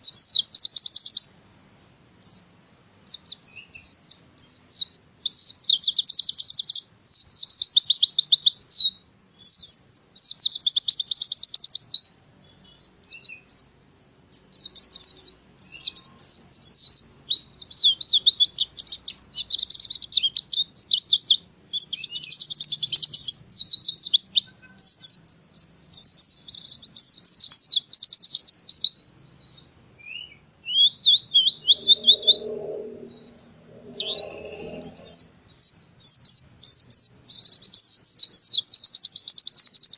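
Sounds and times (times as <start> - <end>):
bird trilling and twittering: 27.8 - 37.0
faint low sound: 31.0 - 35.3.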